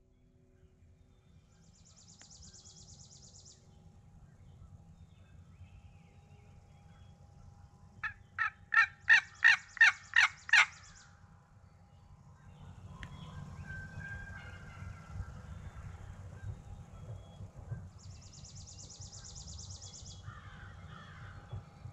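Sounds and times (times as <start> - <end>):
harsh bird calls: 8.0 - 11.0
faint high songbird trill: 16.4 - 20.5.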